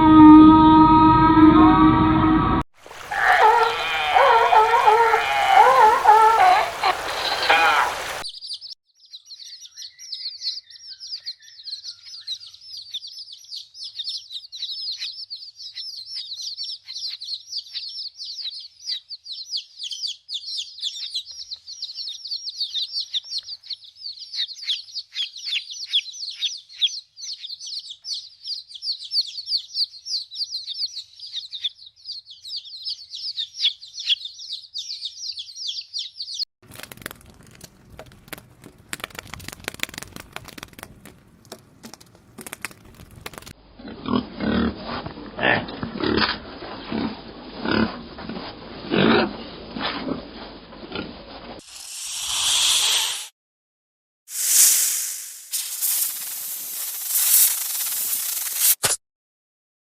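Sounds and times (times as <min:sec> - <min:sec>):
crackling rustle: 0:02.8 - 0:08.2, 0:36.6 - 0:43.6, 0:55.4 - 0:58.8
small birds chirping: 0:03.0 - 0:36.5.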